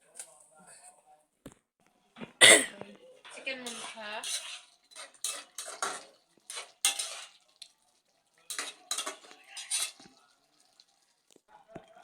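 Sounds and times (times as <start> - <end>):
spoon scraping a cooking pan: 3.3 - 11.2.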